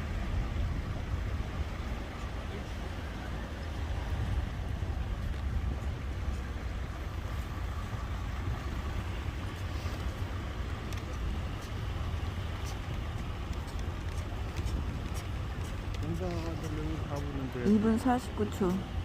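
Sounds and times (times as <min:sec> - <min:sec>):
low rumble: 0:00.0 - 0:19.0
faint ticks: 0:09.6 - 0:17.3.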